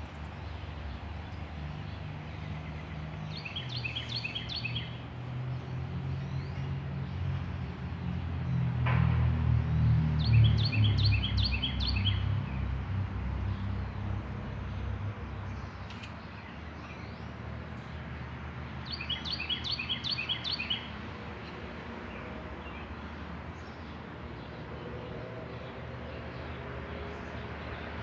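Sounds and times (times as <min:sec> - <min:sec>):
songbird chirping: 0:00.0 - 0:06.8, 0:10.2 - 0:12.8, 0:18.8 - 0:28.0.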